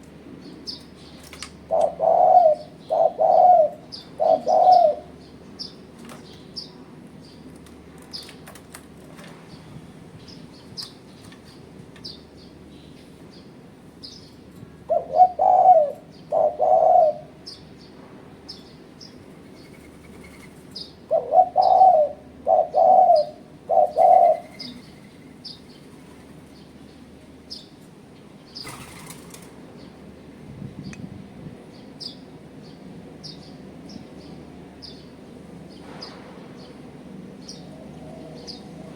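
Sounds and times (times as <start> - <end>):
dove cooing: 1.6 - 5.2, 14.8 - 17.6, 19.5 - 25.4.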